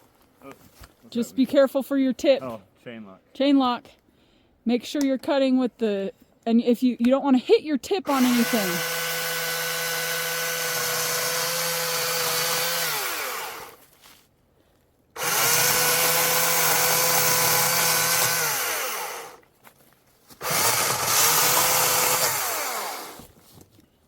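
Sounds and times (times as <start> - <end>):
electric chainsaw cutting wood: 8.1 - 13.8, 15.2 - 19.4, 20.4 - 23.3.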